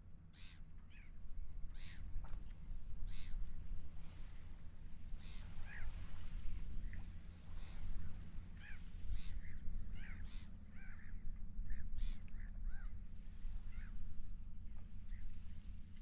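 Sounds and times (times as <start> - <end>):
low rumble of wind and water: 0.0 - 16.0
seagulls calling: 5.2 - 6.2, 7.6 - 13.0.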